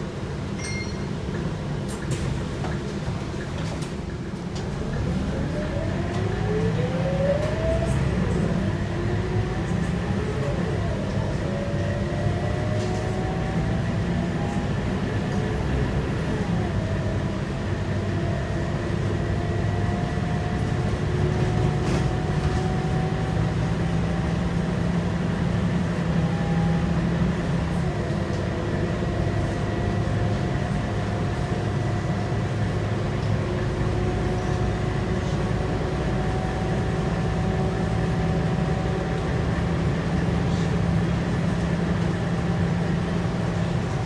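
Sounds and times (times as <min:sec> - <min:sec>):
bus diesel engine accelerating: 0:00.0 - 0:44.0.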